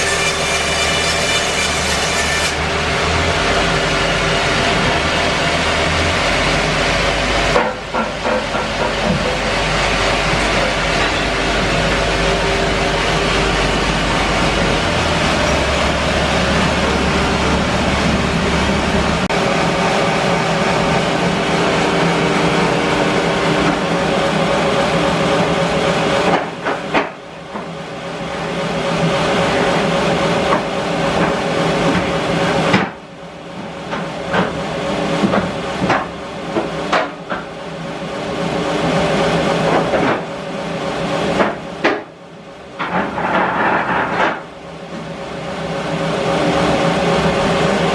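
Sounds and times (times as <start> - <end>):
bandsaw mill whining: 0.0 - 25.8.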